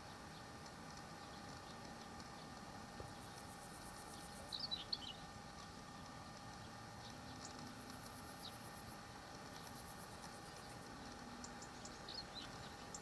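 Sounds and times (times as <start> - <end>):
steady low hum: 0.0 - 13.0
bird chirps: 4.1 - 5.3, 11.4 - 13.0.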